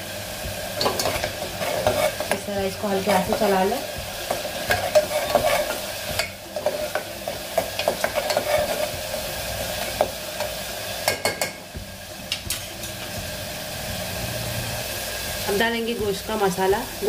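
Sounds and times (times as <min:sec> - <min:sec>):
sizzling in hot oil: 0:00.0 - 0:17.0
spoon scraping a pot: 0:00.8 - 0:03.6, 0:04.2 - 0:09.2.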